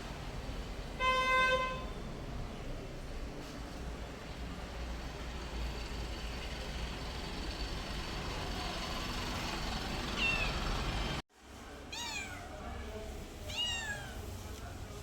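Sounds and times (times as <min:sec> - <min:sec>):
cat meowing: 0:10.1 - 0:10.6, 0:11.9 - 0:12.7, 0:13.5 - 0:14.3.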